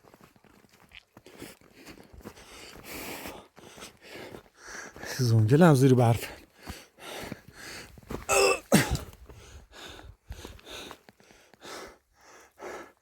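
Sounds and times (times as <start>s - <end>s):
man clearing his throat: 8.3s - 9.1s.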